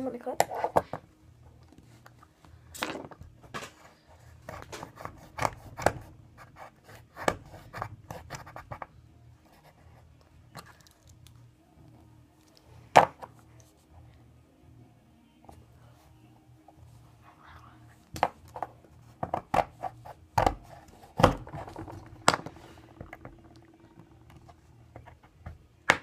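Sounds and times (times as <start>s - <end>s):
snipping and scratching plastic: 4.4s - 6.1s.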